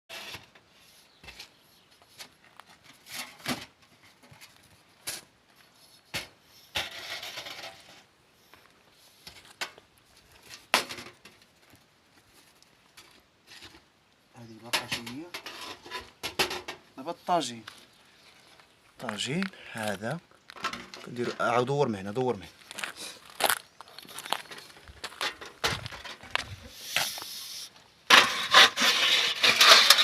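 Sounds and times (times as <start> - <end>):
scraping rustle: 0.1 - 13.9, 14.6 - 19.9, 22.4 - 30.0.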